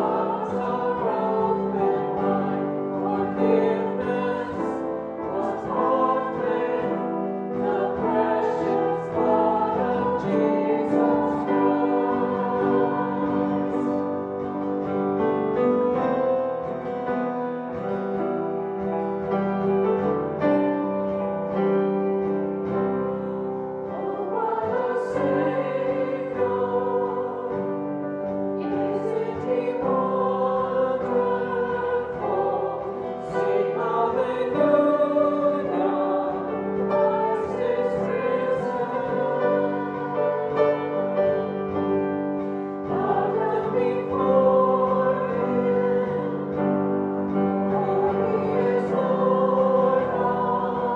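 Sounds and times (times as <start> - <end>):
voices singing: 0.0 - 18.0, 18.8 - 50.9
piano playing: 0.0 - 50.9.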